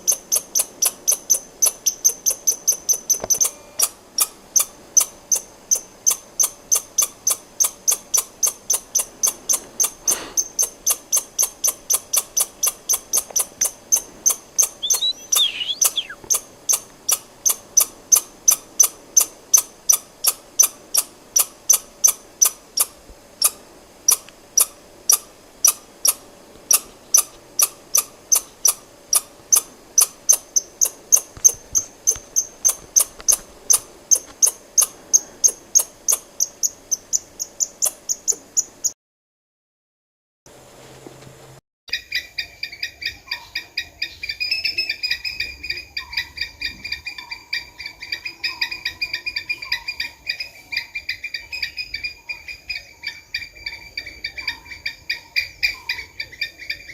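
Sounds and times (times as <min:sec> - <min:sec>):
squirrel alarm chirps: 0:00.0 - 0:17.9, 0:27.9 - 0:38.8
falling chirps: 0:14.8 - 0:16.4.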